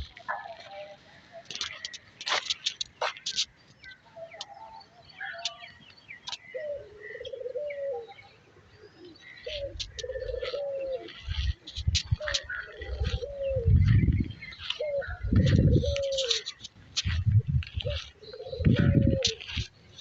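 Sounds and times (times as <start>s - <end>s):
small birds chirping: 0.0s - 20.0s
pigeons cooing: 6.5s - 20.0s.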